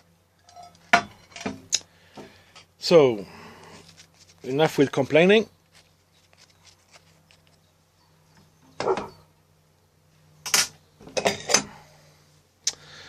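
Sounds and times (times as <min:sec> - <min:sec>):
handling rustles and knocks: 0:00.0 - 0:02.8, 0:03.8 - 0:09.2
faint steady low hum: 0:00.0 - 0:13.0.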